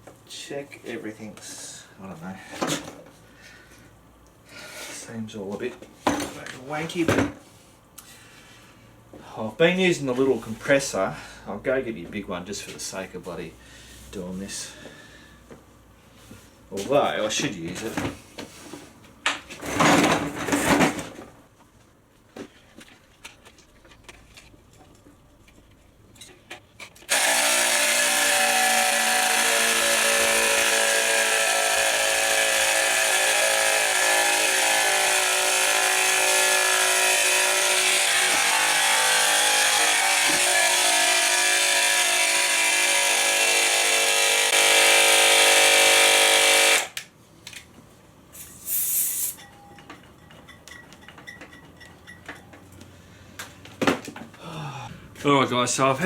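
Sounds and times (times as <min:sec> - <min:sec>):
air compressor buzzing drone: 0:27.1 - 0:47.0
short air hiss: 0:48.4 - 0:49.4.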